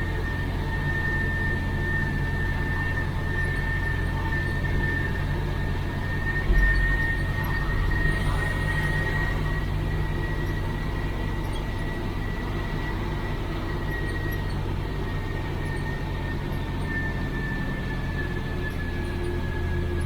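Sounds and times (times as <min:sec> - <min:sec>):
truck diesel engine running: 0:00.0 - 0:20.0
steady high whine: 0:04.2 - 0:11.5.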